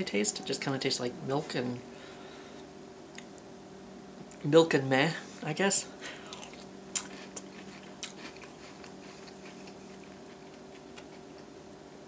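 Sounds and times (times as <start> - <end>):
faint steady hum: 0.0 - 12.0
person chewing: 6.1 - 11.5.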